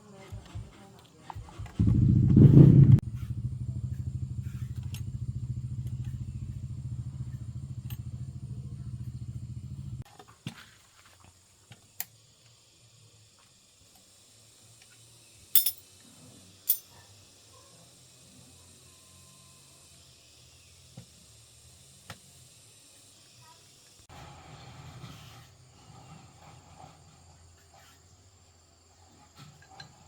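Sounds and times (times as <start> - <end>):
small engine running: 1.6 - 10.0.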